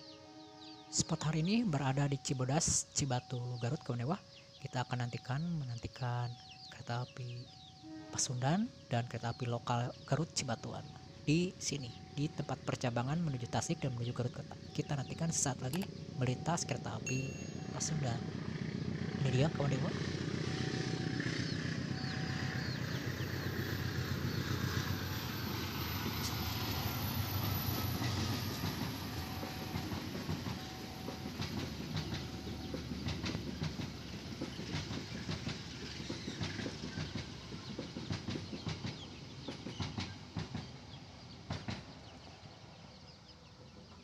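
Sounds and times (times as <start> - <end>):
diesel locomotive engine: 0.0 - 44.0
train wheels clattering over rail joints: 27.6 - 42.2.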